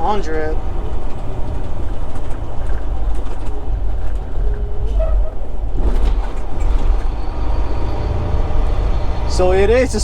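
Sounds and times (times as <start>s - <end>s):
road noise: 0.0s - 10.0s
truck engine drone: 0.0s - 10.0s.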